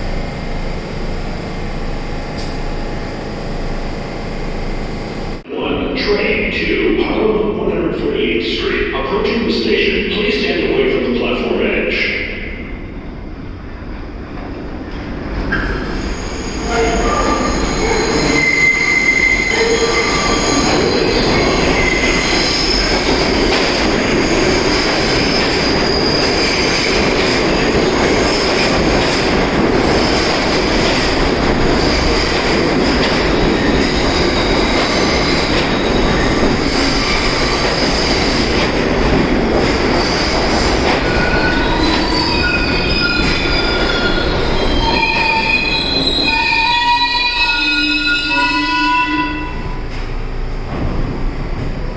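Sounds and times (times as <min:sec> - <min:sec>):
subway cars rumbling: 0:00.0 - 0:51.9
train wheels squealing on rails: 0:15.5 - 0:28.8, 0:31.8 - 0:38.9, 0:40.0 - 0:50.1.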